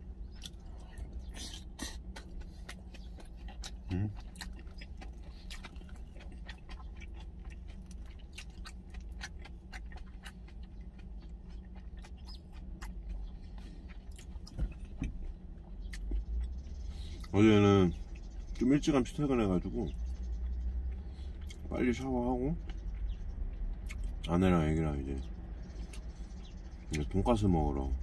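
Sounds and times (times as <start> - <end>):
man chewing food: 0.0 - 17.3, 19.9 - 21.7, 22.6 - 24.3, 25.3 - 27.0
steady low hum: 0.0 - 28.0
man humming: 3.9 - 4.2.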